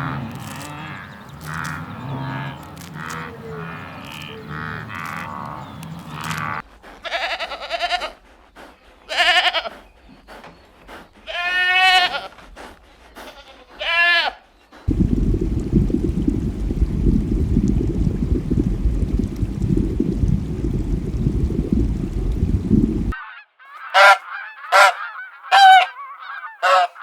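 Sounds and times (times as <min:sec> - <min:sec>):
goat bleating: 0:07.0 - 0:08.2, 0:09.1 - 0:09.8, 0:11.3 - 0:12.4, 0:13.2 - 0:14.4.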